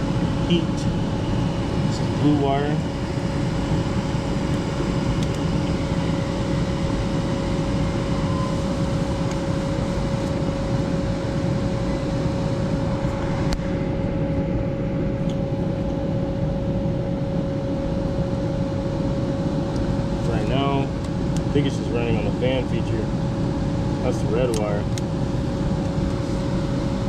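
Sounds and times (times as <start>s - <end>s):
blower motor humming: 0.0s - 11.1s.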